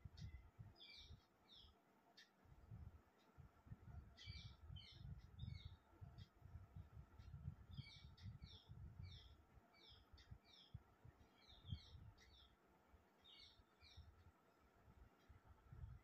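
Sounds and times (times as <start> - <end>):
small bird chirping: 0.1 - 2.4, 4.0 - 6.4, 7.2 - 12.6, 13.2 - 14.2.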